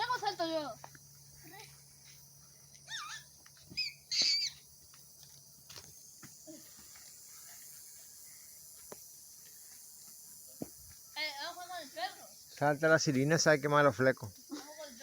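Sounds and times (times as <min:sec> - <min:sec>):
high bird-like calls: 0:02.9 - 0:04.7.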